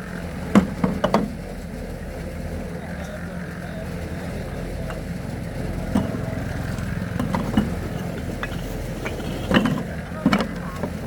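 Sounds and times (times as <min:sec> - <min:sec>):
small engine running: 0:00.0 - 0:11.0
sharp knocks and clanks: 0:00.5 - 0:01.5, 0:05.8 - 0:11.0.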